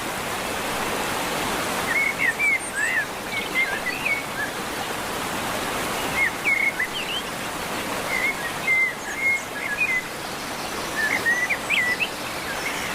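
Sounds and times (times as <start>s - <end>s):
small songbirds chirping: 5.8s - 12.9s.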